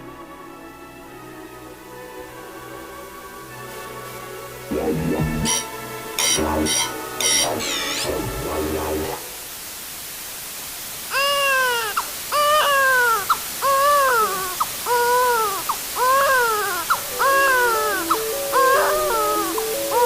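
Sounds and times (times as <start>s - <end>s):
faint hiss: 0.0s - 20.0s
stepped electronic tones: 4.7s - 9.1s
baby crying: 11.1s - 20.0s.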